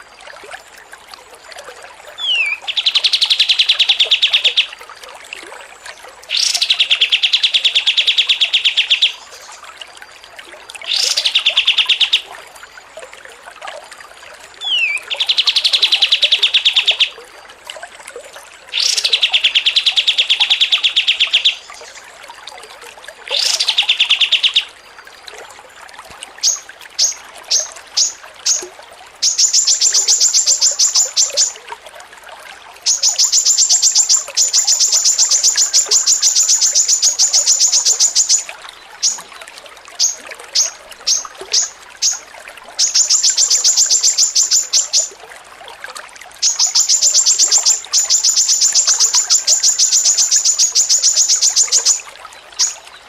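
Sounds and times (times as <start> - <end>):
songbird trilling: 2.2 - 4.7, 14.6 - 17.1, 18.8 - 21.9, 23.4 - 24.7, 26.4 - 28.6, 29.2 - 31.6, 32.9 - 39.3, 40.0 - 42.2, 42.8 - 45.1, 46.4 - 52.8.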